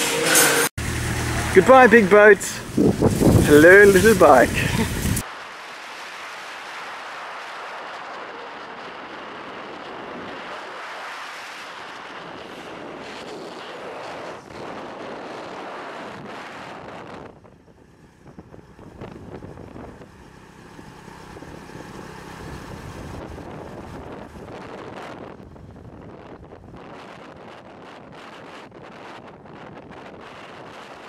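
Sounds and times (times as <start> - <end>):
motorcycle engine: 0.0 - 5.2, 17.5 - 26.1
road noise: 0.0 - 29.2
wind buffeting microphone: 1.6 - 5.3, 7.3 - 31.0.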